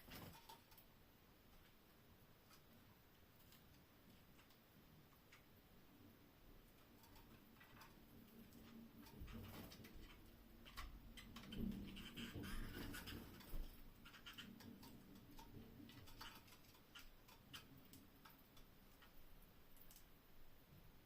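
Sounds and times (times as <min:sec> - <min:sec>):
canaries ticking and tapping in cage: 0:00.0 - 0:21.0.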